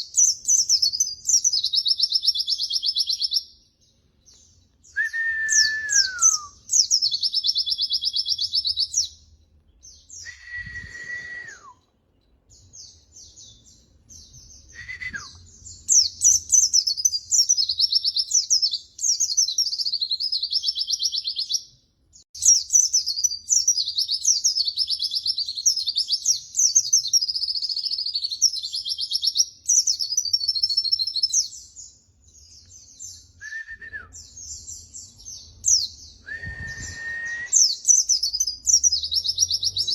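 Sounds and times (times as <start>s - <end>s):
bird whistles sliding down: 5.0s - 6.5s, 10.2s - 11.8s, 36.3s - 37.7s.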